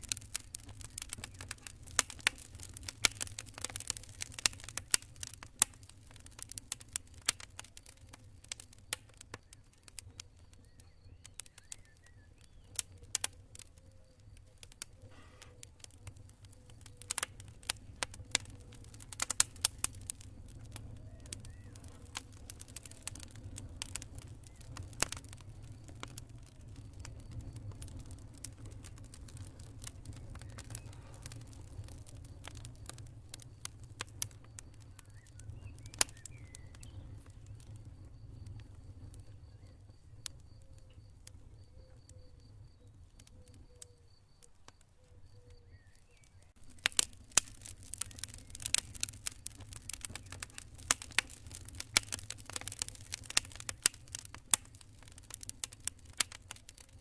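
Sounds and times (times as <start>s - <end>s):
campfire crackling and popping: 0.0s - 57.0s
crickets chirping: 20.3s - 51.9s.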